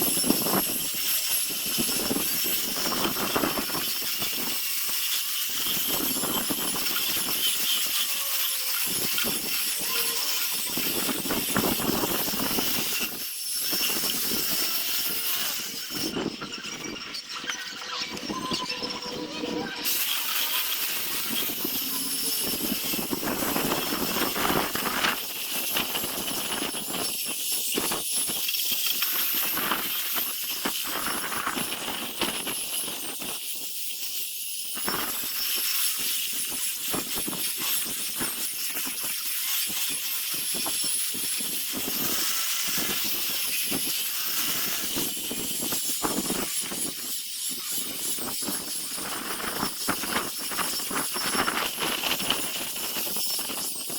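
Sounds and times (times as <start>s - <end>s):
power sander on wood: 0.0s - 16.2s, 19.8s - 26.8s.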